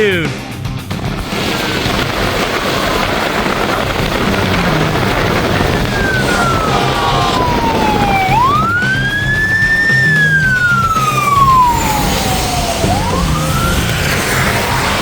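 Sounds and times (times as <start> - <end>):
low rumble: 0.5 - 15.0
siren wailing: 4.6 - 15.0.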